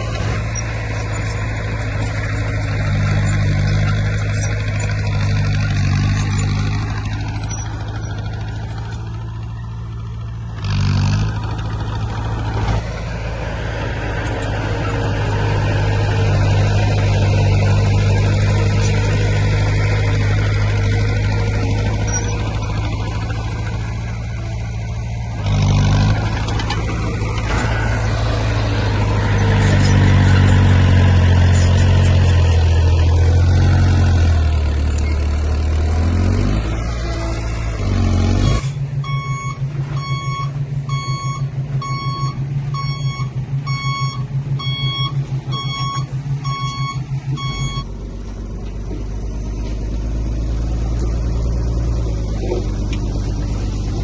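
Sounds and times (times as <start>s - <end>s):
diesel earthmoving machine engine: 0.0s - 54.0s
back-up alarm beeping: 38.4s - 47.9s.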